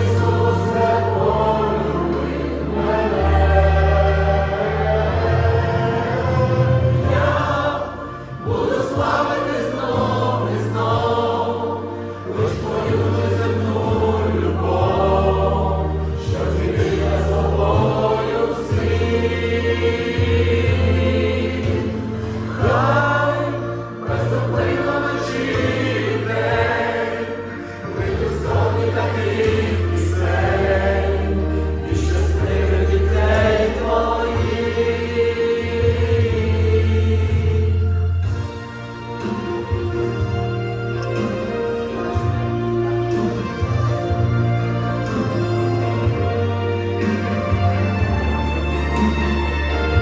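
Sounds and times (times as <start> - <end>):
choir singing worship song: 0.0 - 50.0
steady bass accompaniment: 0.0 - 50.0.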